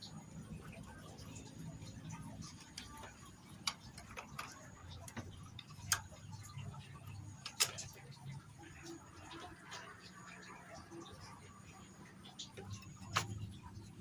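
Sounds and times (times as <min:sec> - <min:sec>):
tools and parts clicking: 0:02.4 - 0:08.2.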